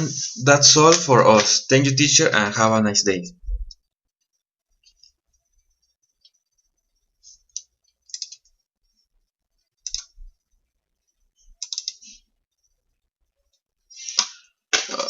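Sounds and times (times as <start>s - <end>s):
faint clicking bursts: 7.4s - 8.6s, 9.7s - 10.3s, 11.4s - 12.1s.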